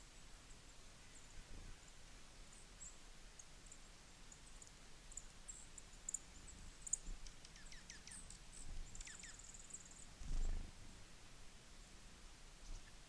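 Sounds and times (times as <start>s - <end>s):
small songbirds calling: 2.5s - 10.6s, 12.6s - 13.0s.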